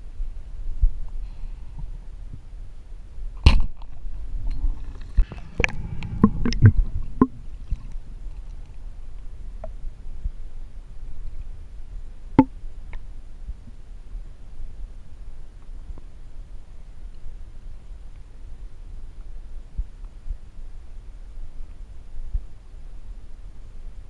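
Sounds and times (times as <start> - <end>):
steady low rumble: 0.0 - 22.5
sharp crack: 3.4 - 3.9
gear knocking and clicking underwater: 4.5 - 8.7.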